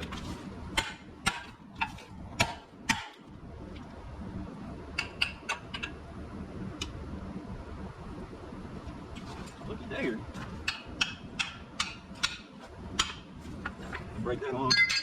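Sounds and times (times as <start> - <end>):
hammer on metal: 10.7 - 13.3.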